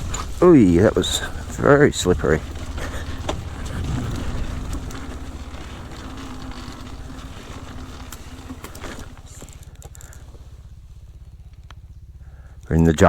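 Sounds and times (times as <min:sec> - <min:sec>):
wind noise on microphone: 0:00.0 - 0:09.2
dirt bike engine puttering: 0:00.0 - 0:13.0.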